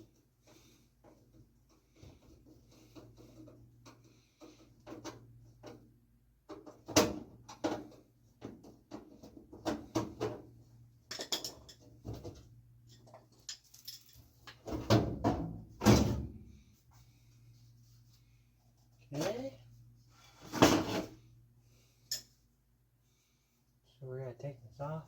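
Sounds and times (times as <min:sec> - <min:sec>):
tools knocking and clicking: 0:11.1 - 0:14.7.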